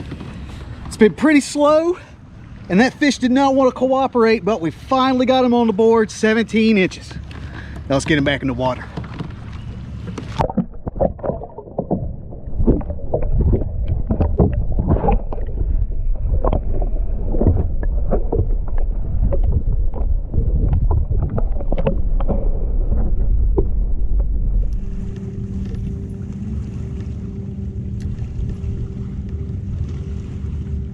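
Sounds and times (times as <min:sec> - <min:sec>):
knocks and clatter on plastic kayak: 0:00.0 - 0:01.0, 0:07.0 - 0:24.4
low rumble: 0:09.3 - 0:30.9
steady hum with whistling tone: 0:23.2 - 0:30.9.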